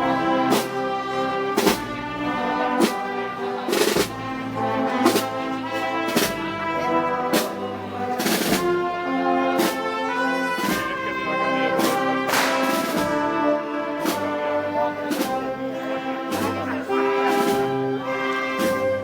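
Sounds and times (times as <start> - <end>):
brass chords: 0.0 - 19.0
drum and cymbal strikes: 11.8 - 13.4.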